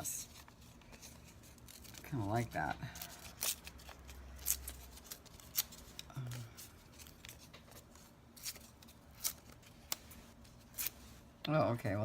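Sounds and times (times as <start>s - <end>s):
scissors snipping paper: 1.5s - 6.1s.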